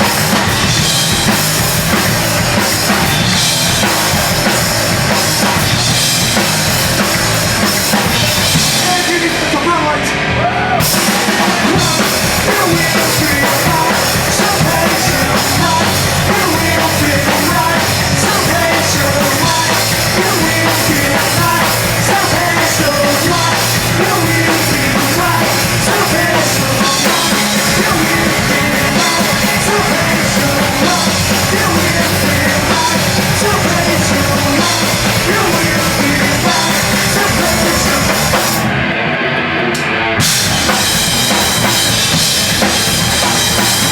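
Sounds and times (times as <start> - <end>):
pounding drum kit with cymbals: 0.0 - 38.9, 39.7 - 43.9
bass guitar: 0.0 - 43.9
distorted electric guitars: 0.0 - 43.9.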